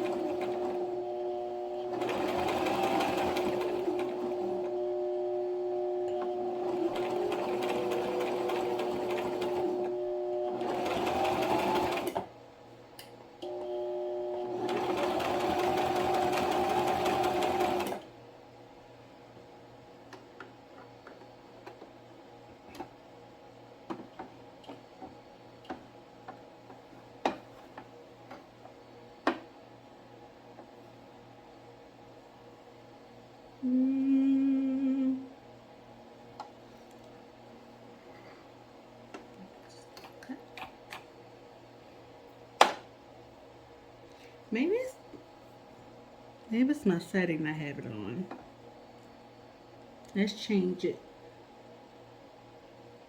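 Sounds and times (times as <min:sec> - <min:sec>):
sewing machine stitching: 0:00.0 - 0:04.8, 0:06.0 - 0:12.3, 0:14.4 - 0:18.0.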